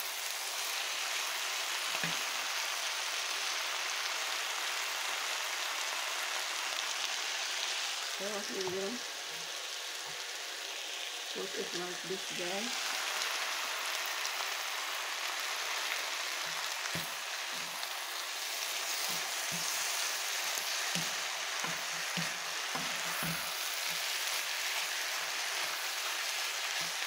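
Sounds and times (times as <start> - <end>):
food sizzling in a wok: 0.0 - 27.0
wooden spatula scraping a pan: 16.6 - 27.0.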